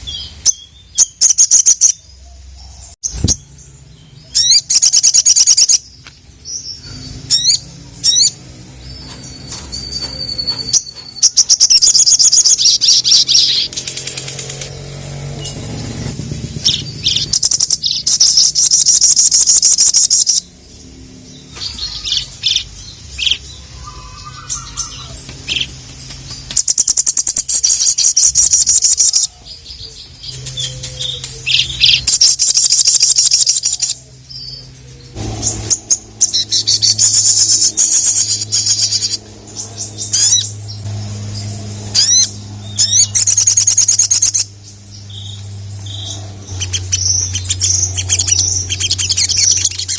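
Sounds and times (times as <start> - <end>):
bird rapid high-pitched calls: 0.0 - 20.6, 21.4 - 49.9
steady low hum: 10.8 - 49.9.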